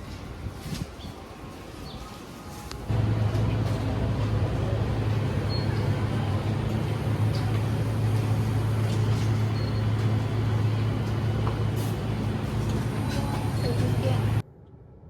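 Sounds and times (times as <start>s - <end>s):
road noise: 1.4s - 14.4s
vehicle engine hum: 2.9s - 14.4s.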